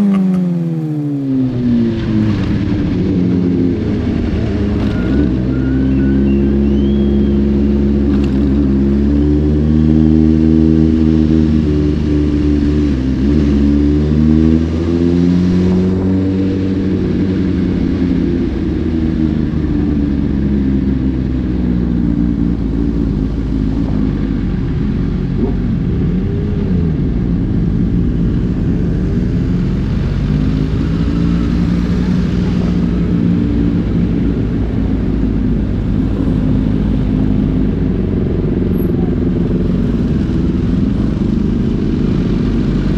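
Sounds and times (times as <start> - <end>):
motorcycle engines revving: 0.0 - 42.9
steady low drone: 0.0 - 42.9.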